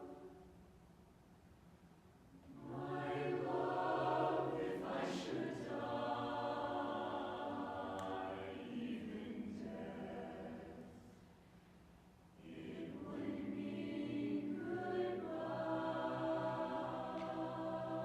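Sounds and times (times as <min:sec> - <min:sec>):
chorus singing a cappella: 0:02.5 - 0:11.3, 0:12.4 - 0:18.0.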